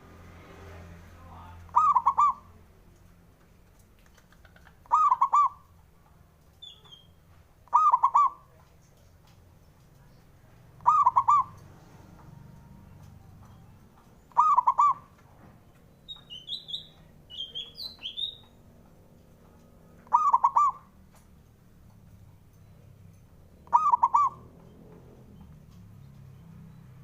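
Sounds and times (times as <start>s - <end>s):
dove cooing: 1.7s - 2.6s, 4.2s - 5.7s, 7.6s - 8.6s, 10.7s - 11.7s, 14.3s - 15.2s, 20.0s - 21.0s, 23.6s - 24.7s.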